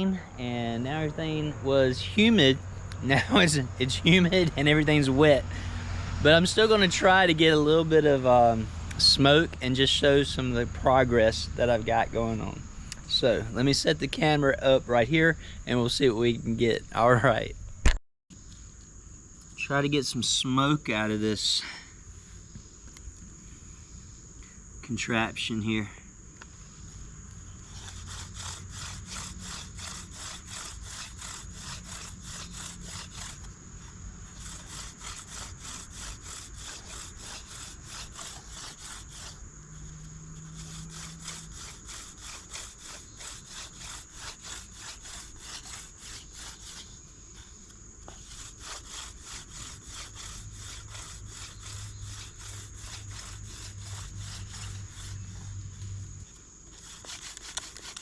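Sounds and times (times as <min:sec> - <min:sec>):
wooden spindle grinding into wood: 0:27.6 - 0:33.6, 0:34.2 - 0:47.0, 0:48.0 - 0:55.5, 0:56.7 - 0:58.0.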